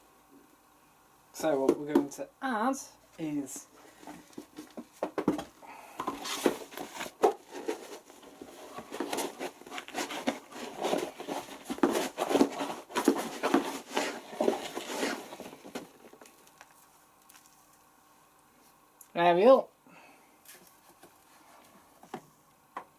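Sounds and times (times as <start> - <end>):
packaging rustling and knocking: 4.0 - 17.5.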